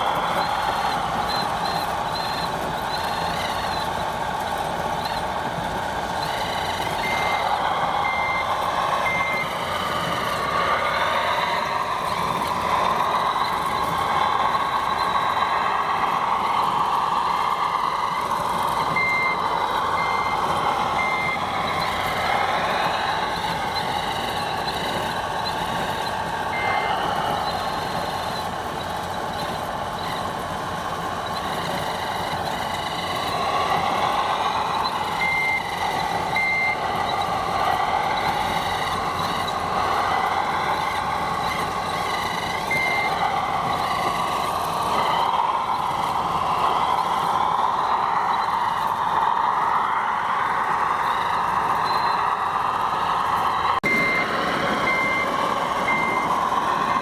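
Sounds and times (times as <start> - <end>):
reversing beeps: 0.0 - 4.1, 5.0 - 5.4, 6.1 - 30.3, 31.2 - 48.9, 50.9 - 57.0
toy machine engine noise: 0.0 - 57.0.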